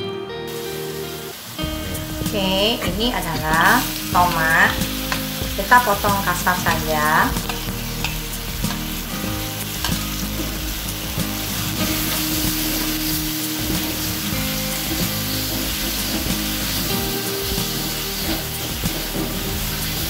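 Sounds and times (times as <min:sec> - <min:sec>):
food sizzling in hot oil: 0:00.5 - 0:20.0
metal spatula stirring in wok: 0:03.3 - 0:20.0.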